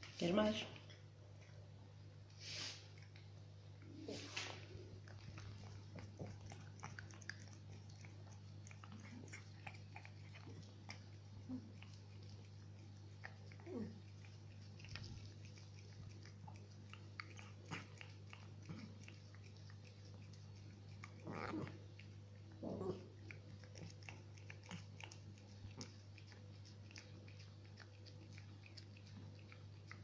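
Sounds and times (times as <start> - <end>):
low steady hum: 0.0 - 30.0
cat chewing wet clicks: 4.6 - 30.0.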